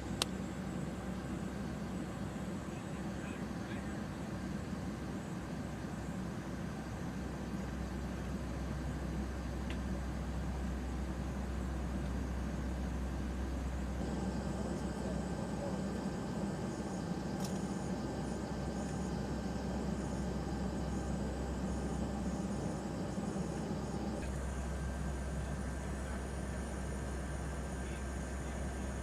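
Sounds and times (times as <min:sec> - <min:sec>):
jet aircraft cabin drone: 0:00.0 - 0:29.0
low hum: 0:07.2 - 0:29.0.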